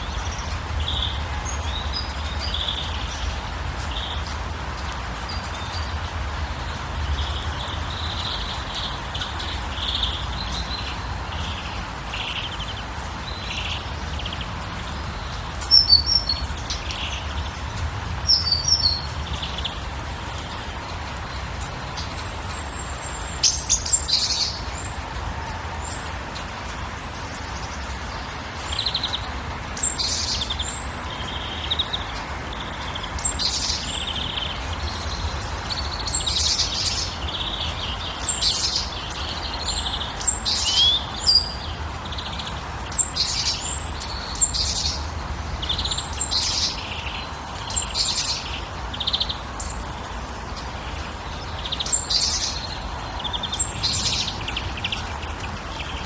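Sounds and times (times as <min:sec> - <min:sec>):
songbirds chirping and whistling: 0:21.6 - 0:56.0.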